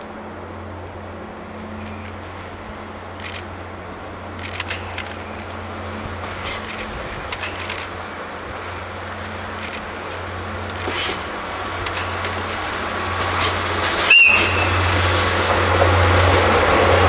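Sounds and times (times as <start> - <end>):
diesel locomotive engine drone: 0.0 - 17.0
short crackling clicks: 4.4 - 5.6, 6.6 - 8.0, 8.9 - 14.0.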